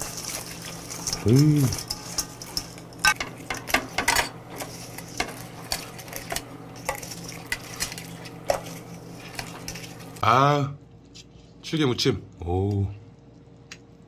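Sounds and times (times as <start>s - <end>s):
chopsticks clicking and scraping metal: 0.0s - 10.2s.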